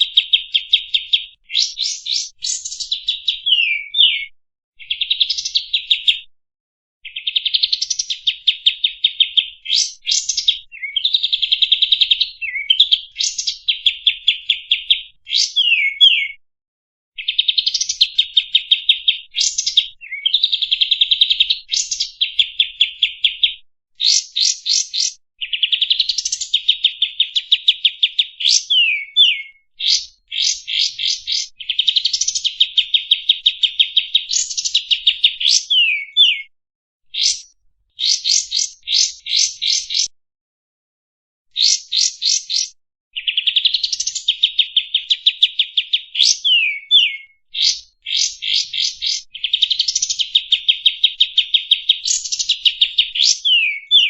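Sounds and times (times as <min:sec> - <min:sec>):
songbird chattering trills: 0:21.2 - 0:36.4, 0:37.2 - 0:40.1, 0:45.8 - 0:51.2, 0:52.1 - 0:54.0.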